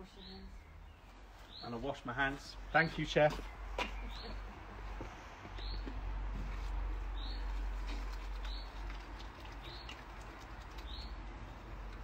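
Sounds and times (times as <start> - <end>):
low outdoor background rumble: 3.5 - 12.0
small bird chirping: 7.2 - 11.2.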